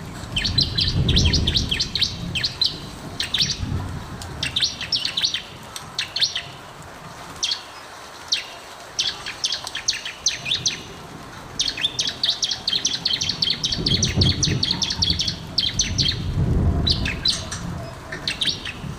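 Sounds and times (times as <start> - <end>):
bird singing high chirps: 11.6 - 17.6
low rumble: 13.8 - 18.9.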